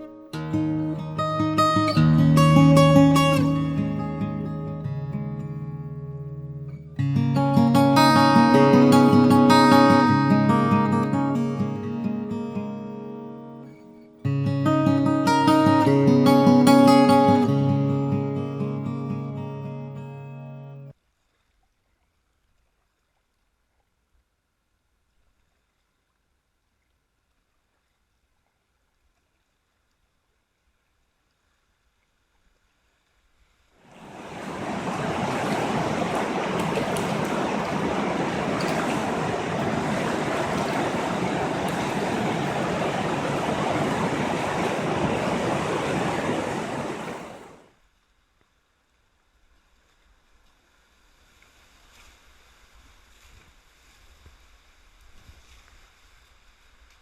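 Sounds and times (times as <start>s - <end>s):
faint water noise: 0.0s - 57.0s
whitewater roaring: 7.0s - 12.5s, 33.8s - 47.7s.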